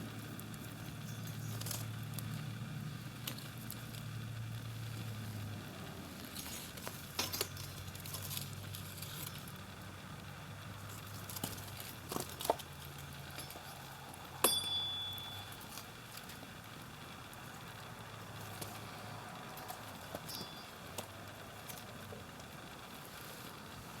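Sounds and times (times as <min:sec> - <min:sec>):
steady low hum: 0:00.0 - 0:24.0
small objects clinking and knocking: 0:06.4 - 0:09.5
sharp metallic clink: 0:14.4 - 0:15.7, 0:20.2 - 0:20.8.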